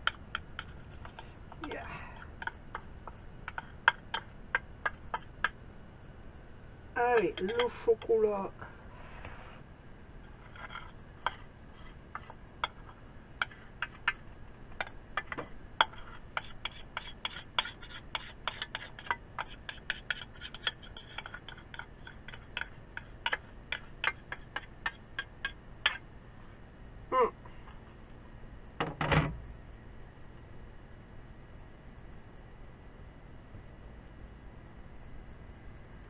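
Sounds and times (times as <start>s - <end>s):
metal spoon scraping saucepan: 0.0s - 5.5s, 7.0s - 8.1s, 10.3s - 14.2s, 15.2s - 26.0s.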